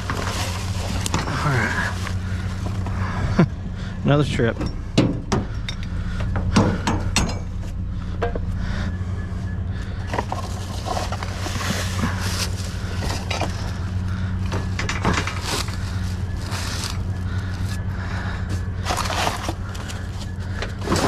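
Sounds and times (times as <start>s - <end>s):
scrap metal clanking and scraping: 0.0s - 3.2s, 10.0s - 17.2s, 18.4s - 21.0s
steady low hum: 0.0s - 21.0s.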